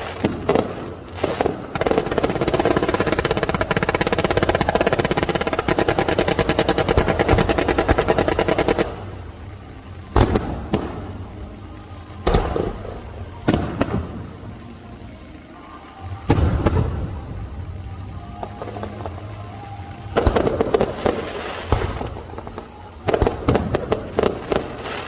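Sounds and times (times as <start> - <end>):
rapid firework bangs: 0.0 - 9.2, 10.1 - 11.2, 12.2 - 14.2, 20.2 - 25.0.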